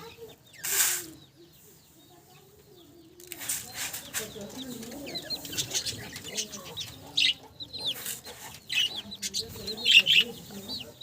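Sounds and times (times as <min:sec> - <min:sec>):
budgerigars chirping: 0:03.6 - 0:11.0.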